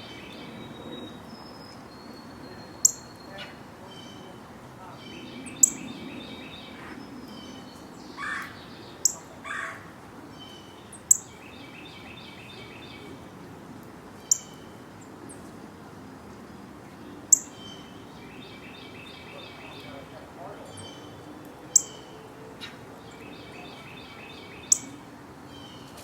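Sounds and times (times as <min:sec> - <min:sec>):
birds chirping and trilling: 0:00.0 - 0:13.4, 0:14.2 - 0:15.5, 0:16.9 - 0:26.0
harsh bird calls: 0:02.0 - 0:13.2, 0:17.3 - 0:25.9.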